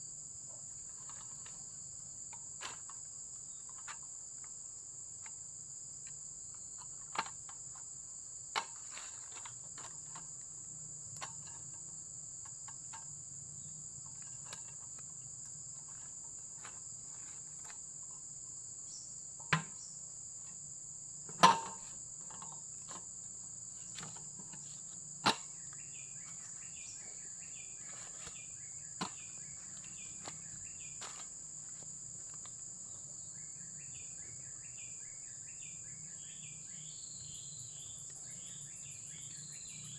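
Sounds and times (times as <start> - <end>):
crickets chorus: 0.0 - 39.9
faint chirps: 23.7 - 31.8, 32.8 - 39.9.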